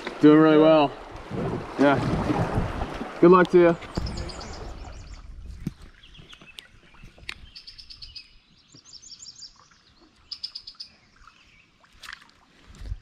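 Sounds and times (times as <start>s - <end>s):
wind noise on microphone: 1.2s - 3.0s, 3.9s - 8.3s, 12.6s - 13.0s
songbird singing high notes: 6.1s - 11.7s.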